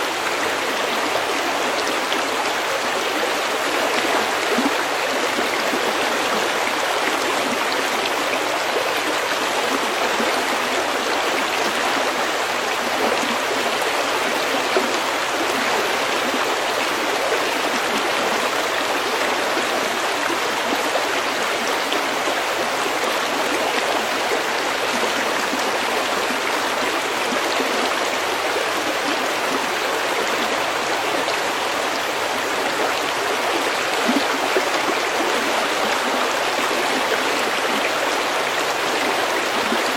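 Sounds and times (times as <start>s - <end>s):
stream flowing over pebbles: 0.0s - 39.9s.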